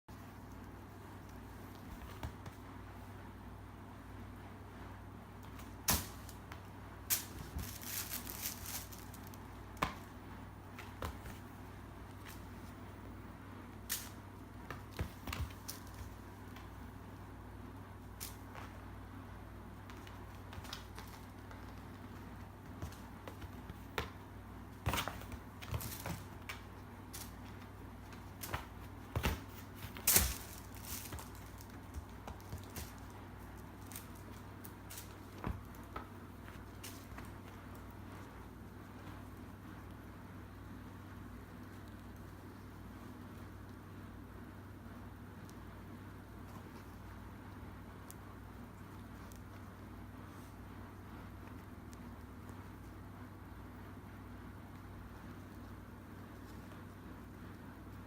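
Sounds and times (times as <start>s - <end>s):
faint low hum: 0.1s - 58.0s
rustling: 4.8s - 43.8s
kitten pouncing and scrambling: 5.4s - 13.1s, 19.8s - 39.4s.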